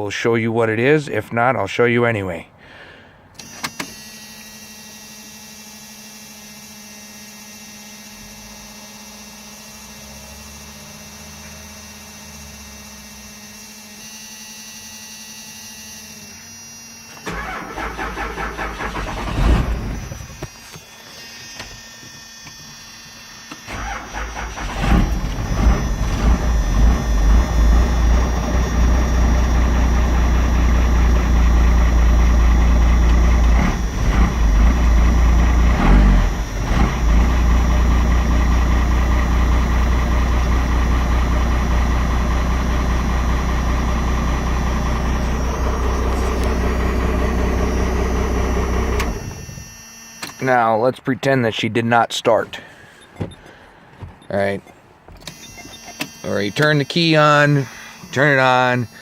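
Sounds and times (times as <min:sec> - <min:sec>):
starter motor cranking: 0:17.1 - 0:38.2, 0:44.6 - 0:50.4
diesel engine idling: 0:17.2 - 0:21.1, 0:23.7 - 0:49.7, 0:56.5 - 0:59.0.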